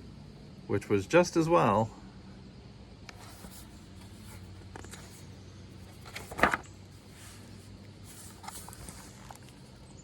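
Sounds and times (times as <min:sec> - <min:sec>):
low steady hum: 0:00.0 - 0:10.0
page turning rustle: 0:03.1 - 0:09.8.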